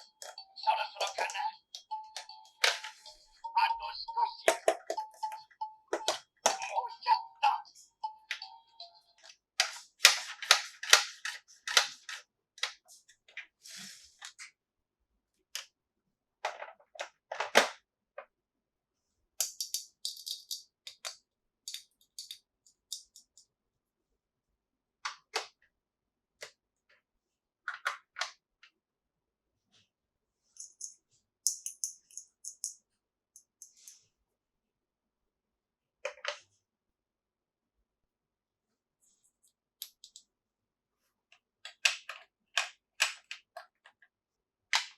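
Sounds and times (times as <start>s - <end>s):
plastic toy pieces clicking: 19.4s - 23.4s, 31.5s - 32.8s.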